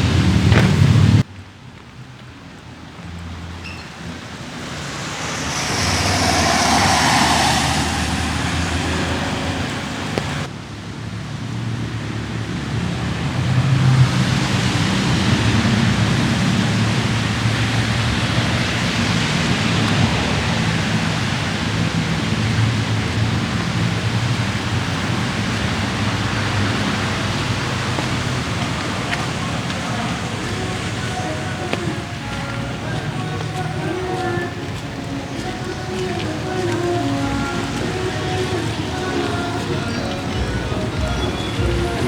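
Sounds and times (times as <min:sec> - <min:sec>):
road traffic rumble: 0:00.0 - 0:42.0
light rain hiss: 0:01.2 - 0:10.5
car tyres hissing on wet road: 0:02.8 - 0:10.6, 0:11.6 - 0:42.0.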